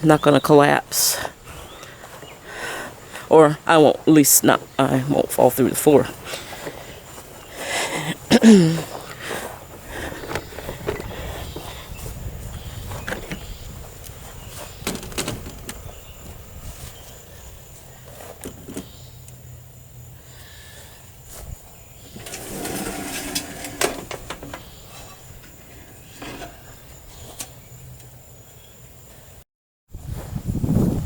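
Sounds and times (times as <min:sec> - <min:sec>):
footsteps on camper floor: 0:01.5 - 0:03.1, 0:06.1 - 0:07.5, 0:08.2 - 0:19.1, 0:20.8 - 0:27.6
bumping and rustling: 0:09.9 - 0:17.0, 0:22.0 - 0:27.6.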